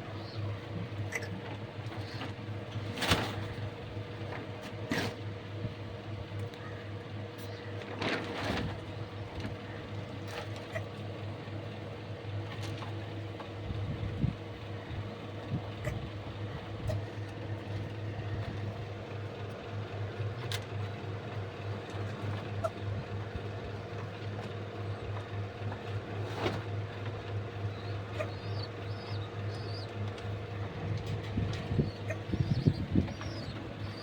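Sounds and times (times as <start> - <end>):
low mechanical hum: 0.0 - 34.0
bird chirps: 27.7 - 30.0, 31.6 - 34.0.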